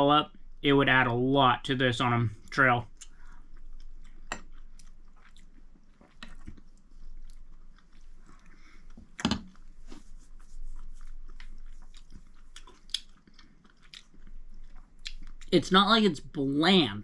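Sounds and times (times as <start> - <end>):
person chewing food: 2.4 - 15.5
wet mouth noises: 2.9 - 15.6.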